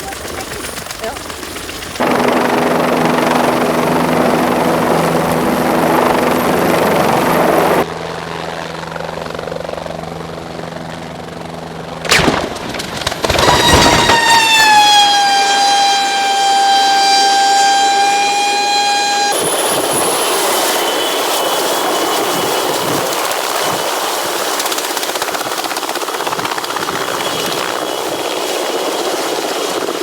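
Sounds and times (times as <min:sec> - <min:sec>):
helicopter engine and rotor: 0:00.0 - 0:15.4, 0:16.0 - 0:30.0
high whine: 0:02.0 - 0:07.8, 0:13.2 - 0:23.0
steady hum: 0:02.0 - 0:07.8.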